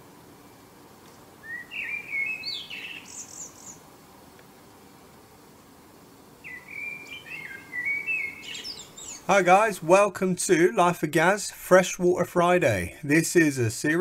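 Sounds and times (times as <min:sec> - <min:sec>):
low outdoor hiss: 0:00.0 - 0:14.0
songbird singing: 0:01.4 - 0:03.9, 0:06.3 - 0:09.9.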